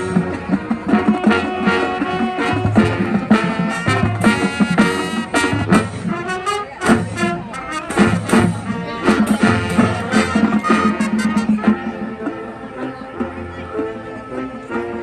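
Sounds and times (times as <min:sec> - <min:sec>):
brass holding chords: 0:00.0 - 0:15.0
sharp drum hits: 0:07.9 - 0:11.7.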